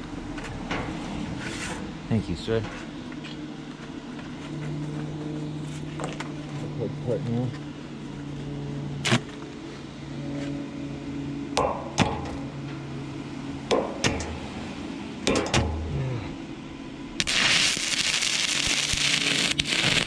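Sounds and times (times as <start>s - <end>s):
low machine hum: 0.0s - 20.0s
hammer striking metal: 11.6s - 12.6s, 13.7s - 14.6s, 15.2s - 16.1s.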